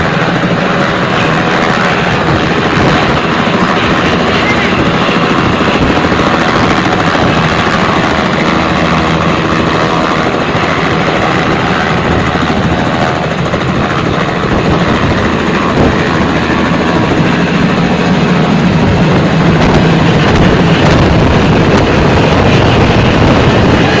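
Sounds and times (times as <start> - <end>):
helicopter rotor and engine: 0.0 - 24.0.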